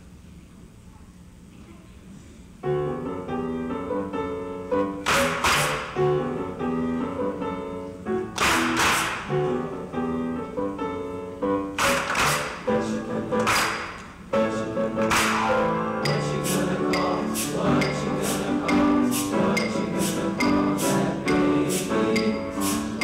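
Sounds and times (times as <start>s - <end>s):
piano playing chords: 2.6s - 23.0s
bright swishing percussion: 15.1s - 23.0s.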